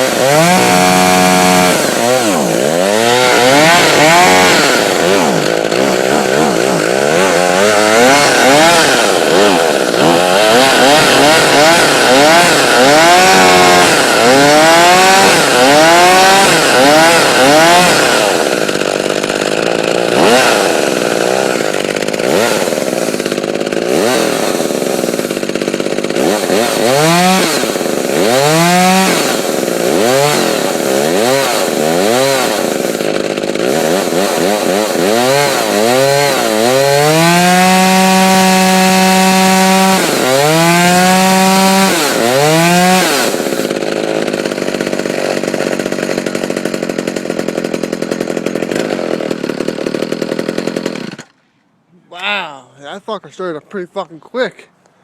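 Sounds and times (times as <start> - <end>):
chainsaw revving: 0.0 - 51.4.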